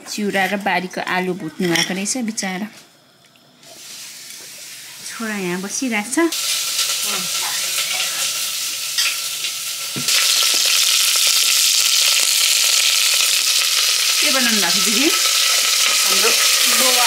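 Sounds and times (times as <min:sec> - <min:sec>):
vegetables sizzling in oil: 0:03.6 - 0:17.0.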